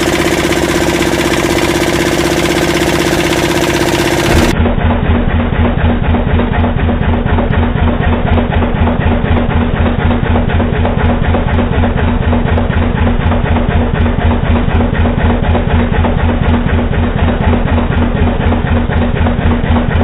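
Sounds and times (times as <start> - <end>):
diesel engine knocking rhythmically: 0.0 - 20.0.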